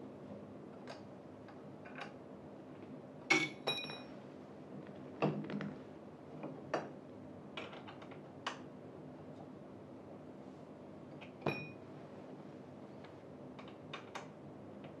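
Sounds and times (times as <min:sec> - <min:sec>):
sharp metallic clink: 0:11.5 - 0:11.8.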